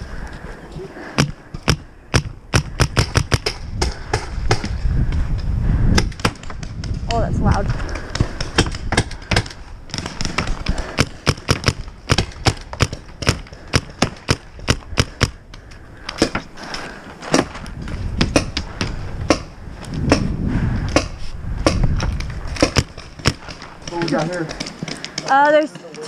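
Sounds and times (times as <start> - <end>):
paintball markers firing: 1.2 - 4.7, 8.0 - 15.4.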